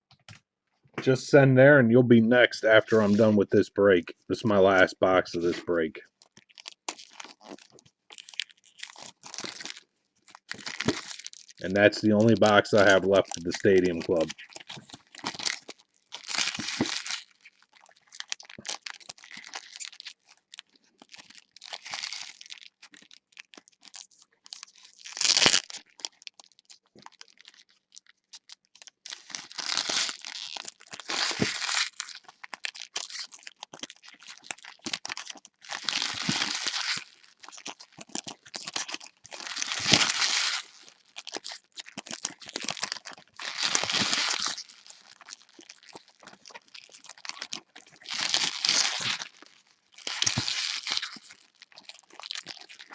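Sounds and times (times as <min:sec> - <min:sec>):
wrapping crinkling: 0:04.0 - 0:52.9
card pack wrapping tearing: 0:10.4 - 0:17.6, 0:24.6 - 0:26.2, 0:29.1 - 0:52.9.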